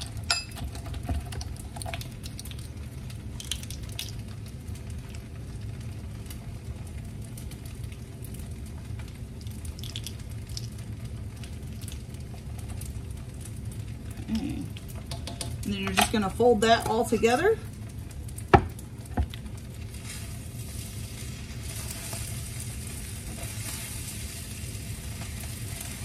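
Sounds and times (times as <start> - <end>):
fried rice sizzling in a wok: 0.0 - 15.7, 16.8 - 26.0.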